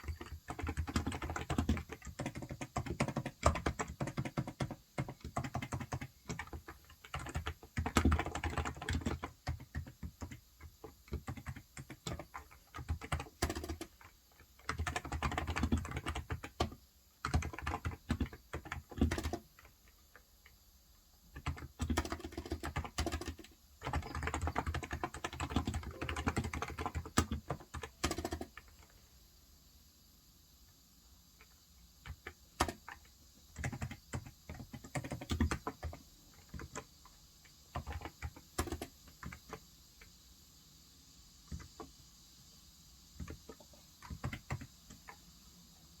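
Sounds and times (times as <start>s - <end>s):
keyboard typing: 0.0s - 20.6s, 21.2s - 28.9s, 31.4s - 39.6s, 41.5s - 41.9s, 43.2s - 45.2s.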